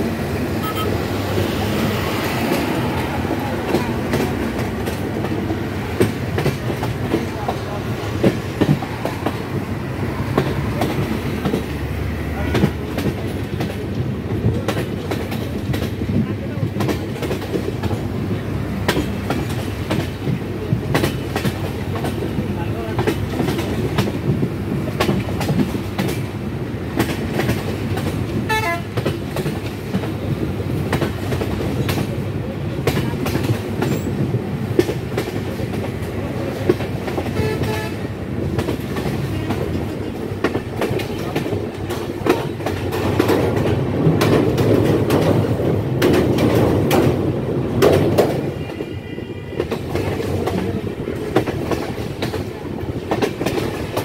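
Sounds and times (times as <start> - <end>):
train rumble: 0.0 - 54.0
train horn tones: 0.6 - 1.1, 28.4 - 29.0, 37.2 - 38.1, 48.5 - 50.1
wheels clicking over rail joints: 1.6 - 48.9.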